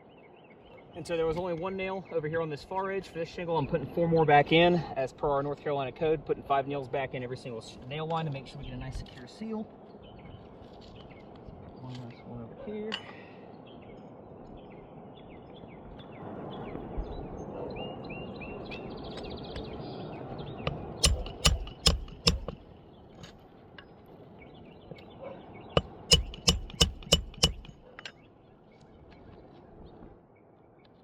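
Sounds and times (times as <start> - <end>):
hammer driving nails: 20.7 - 22.6, 25.8 - 28.1.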